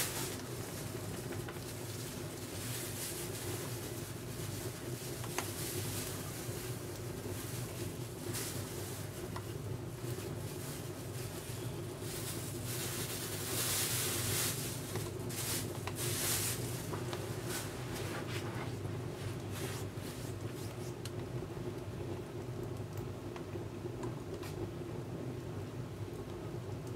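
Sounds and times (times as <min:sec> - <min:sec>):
wood fire crackling and popping: 0:00.0 - 0:10.6
steady low hum: 0:00.0 - 0:26.9.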